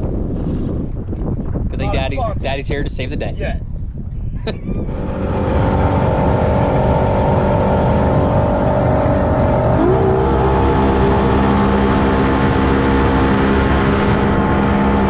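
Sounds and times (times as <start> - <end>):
boat engine running: 4.4 - 15.0.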